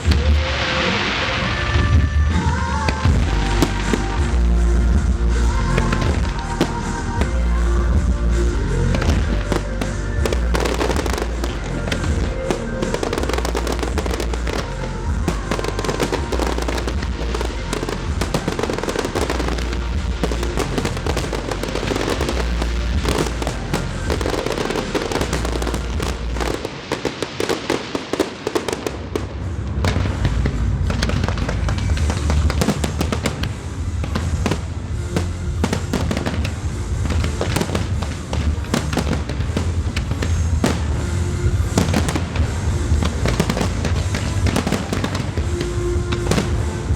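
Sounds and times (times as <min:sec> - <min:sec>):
fireworks bursting and crackling: 0:00.0 - 0:46.9
music: 0:00.0 - 0:46.9
deep low rumble: 0:01.5 - 0:26.7.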